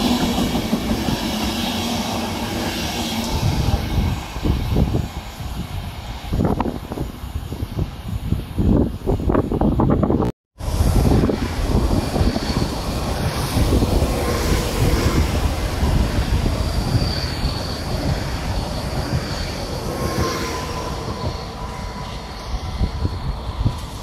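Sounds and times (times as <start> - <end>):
train wheels rumbling on rail: 0.0 - 24.0
high wheel squealing: 11.8 - 24.0.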